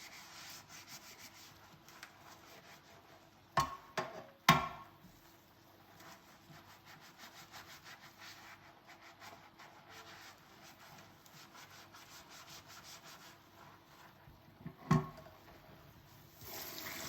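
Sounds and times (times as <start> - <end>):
scrubbing a dish: 0.0 - 3.6, 5.1 - 14.6.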